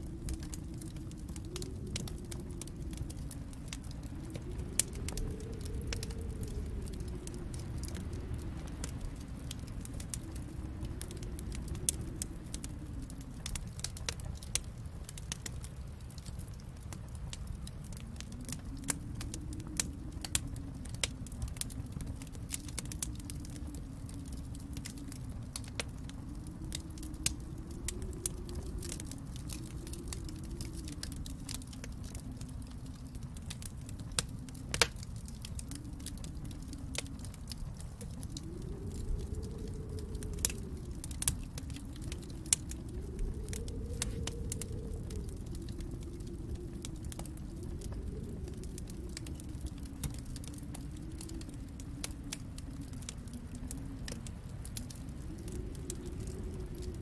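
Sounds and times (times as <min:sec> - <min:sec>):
low rumble: 0:00.0 - 0:57.0
wood fire crackling and popping: 0:00.0 - 0:57.0.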